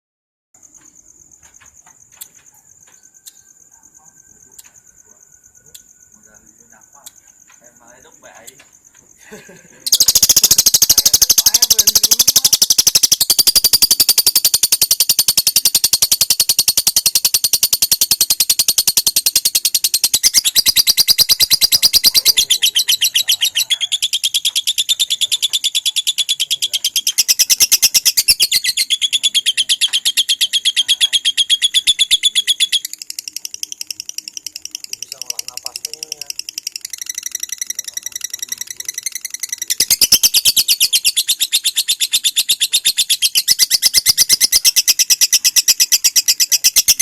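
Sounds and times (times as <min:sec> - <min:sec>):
lovebird trilling: 0:09.9 - 0:47.0.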